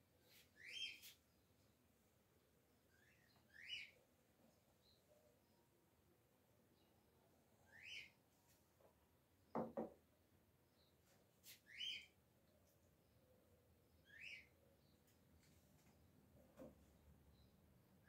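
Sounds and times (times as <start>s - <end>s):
bird chirping: 0.2s - 1.8s, 2.8s - 5.7s, 7.6s - 8.2s, 10.7s - 15.9s.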